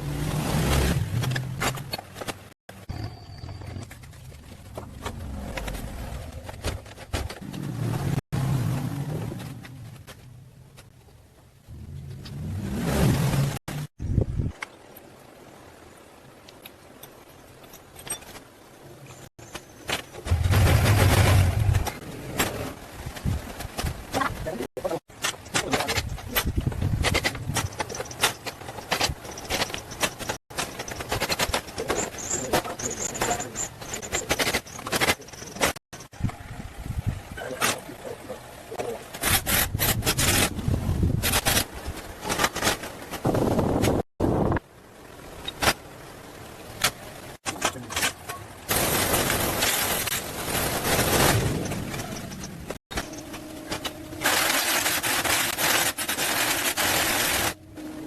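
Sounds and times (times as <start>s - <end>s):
hand tools clicking and knocking: 25.1s - 36.1s.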